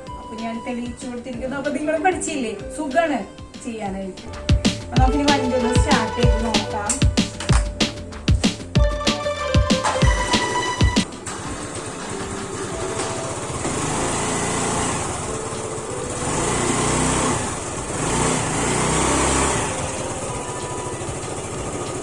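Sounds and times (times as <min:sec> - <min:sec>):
scooter engine revving: 0:09.9 - 0:22.0.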